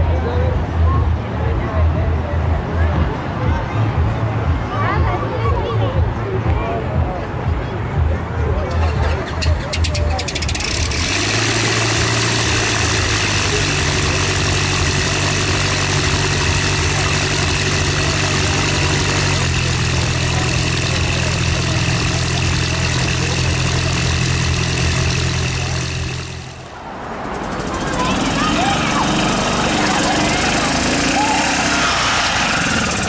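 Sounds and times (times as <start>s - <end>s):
engine running: 8.5s - 33.0s.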